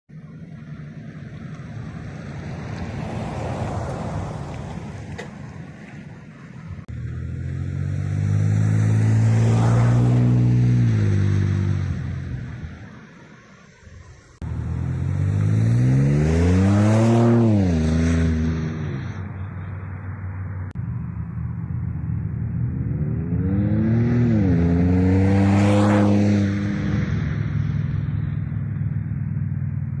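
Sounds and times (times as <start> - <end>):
truck engine accelerating past: 6.9 - 12.8, 14.4 - 19.9
low exhaust drone: 13.8 - 30.0.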